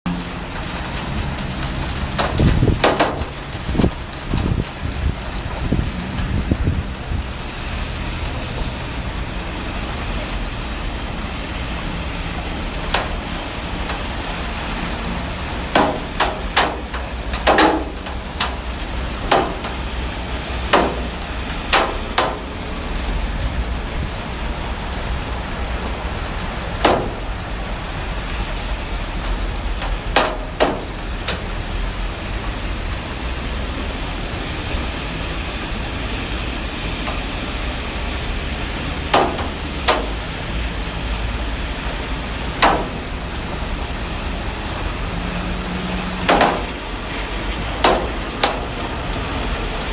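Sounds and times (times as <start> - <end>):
heavy rain: 0.1 - 49.9
sharp knocks: 2.2 - 3.4, 15.7 - 18.6, 19.3 - 19.9, 20.7 - 22.5, 26.8 - 27.4, 29.8 - 31.5, 39.1 - 40.2, 42.6 - 43.1, 46.2 - 46.8, 47.8 - 48.7.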